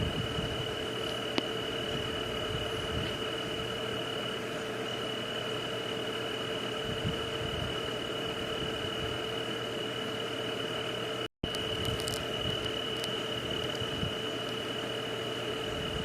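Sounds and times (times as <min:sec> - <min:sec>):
constant high and low tones: 0:00.0 - 0:16.0.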